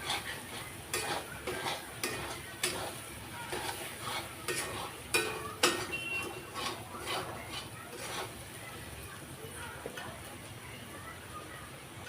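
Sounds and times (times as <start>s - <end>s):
spoon scraping and knocking pan: 0.0s - 8.5s
faint sizzle of frying: 0.0s - 12.0s.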